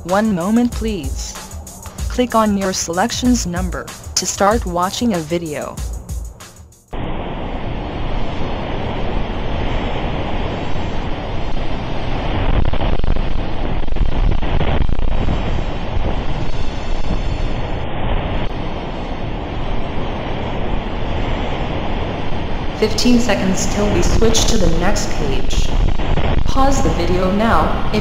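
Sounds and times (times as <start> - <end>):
strong wind on microphone: 7.0 - 28.0.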